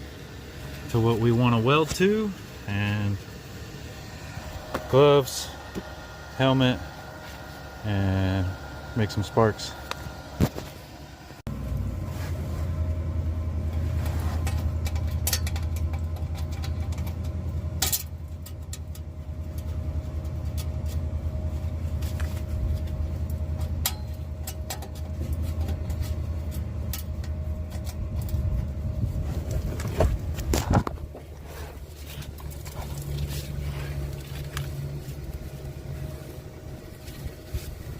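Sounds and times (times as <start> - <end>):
welder arc buzzing and crackling: 0.0 - 11.4.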